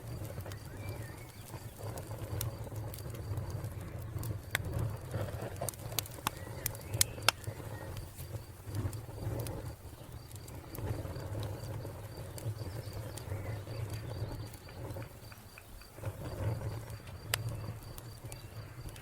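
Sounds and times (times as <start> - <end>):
low rumble of burning: 0.0 - 19.0
wood fire crackling: 0.0 - 19.0
cricket chirping trill: 10.0 - 19.0.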